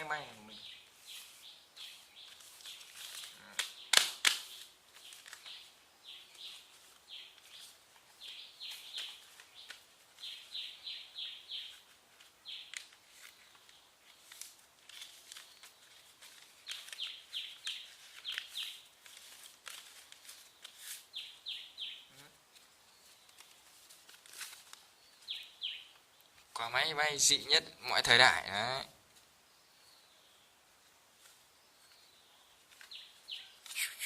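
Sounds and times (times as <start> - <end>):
small birds chirping faintly: 0.0 - 34.0
paper crinkling and clicking: 2.2 - 10.8, 11.6 - 21.4, 22.5 - 26.6, 32.6 - 33.8.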